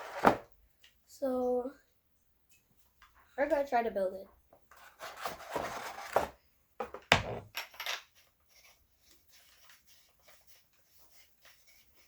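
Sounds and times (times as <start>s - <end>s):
rustling and clinking parts: 7.0s - 8.2s.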